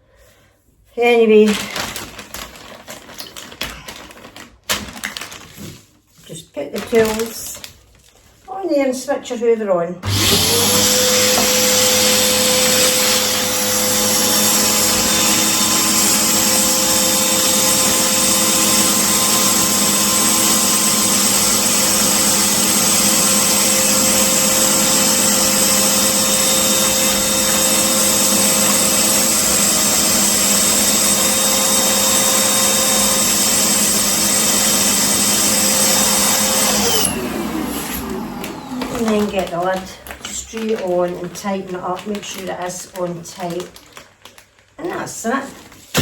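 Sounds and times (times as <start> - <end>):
vacuum cleaner running: 10.0 - 41.0.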